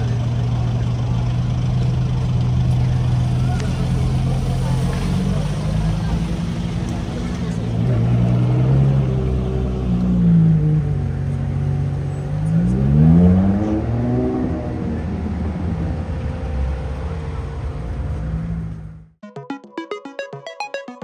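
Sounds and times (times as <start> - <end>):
electronic synth music: 19.2 - 21.0.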